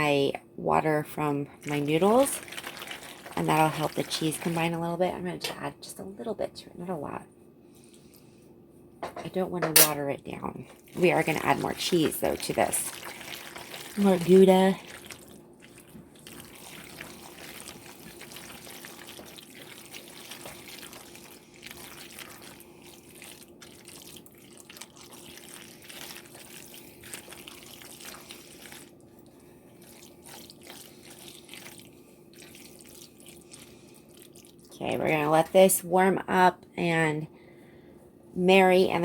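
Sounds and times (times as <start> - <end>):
sauce crackling in a pan: 12.8 - 29.0.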